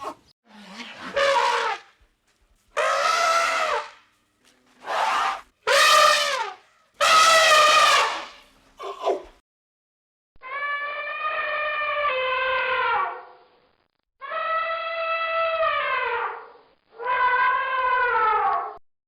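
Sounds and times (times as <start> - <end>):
elephant trumpeting: 0.0 - 1.9, 2.8 - 4.0, 4.8 - 8.4, 10.4 - 13.3, 14.2 - 18.6.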